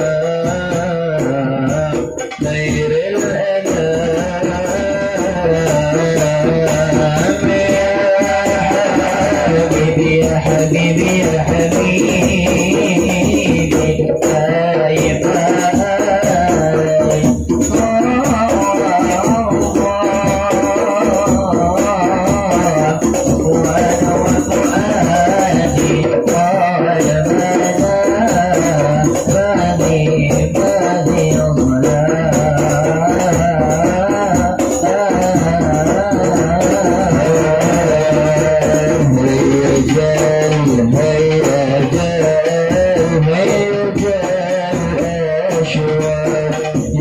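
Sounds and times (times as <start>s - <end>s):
rattling percussion: 0.0s - 47.0s.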